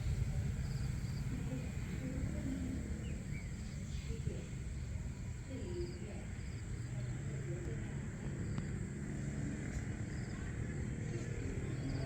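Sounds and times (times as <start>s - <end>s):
low steady rumble: 0.0s - 6.6s.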